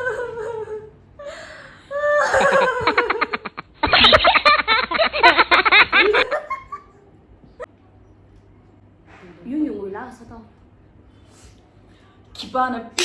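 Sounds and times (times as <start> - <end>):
loud laughter: 2.2 - 7.0.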